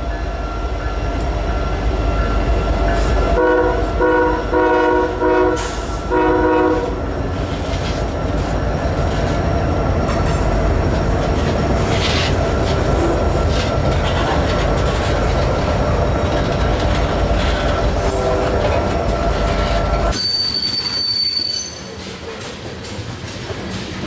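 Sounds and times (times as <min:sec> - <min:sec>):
train wheels rumbling on rail: 0:00.0 - 0:24.0
high-pitched wheel squeal: 0:20.1 - 0:22.0.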